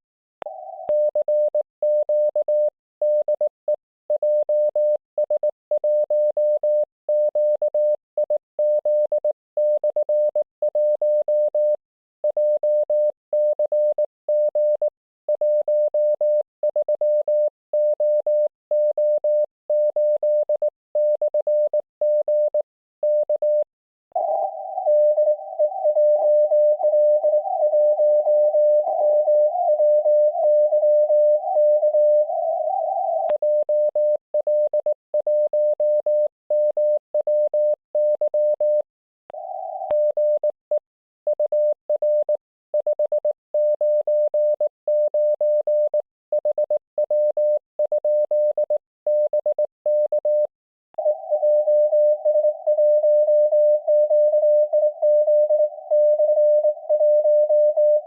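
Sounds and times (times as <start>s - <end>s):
morse code tone: 24.2s - 38.8s, 39.4s - 58.0s.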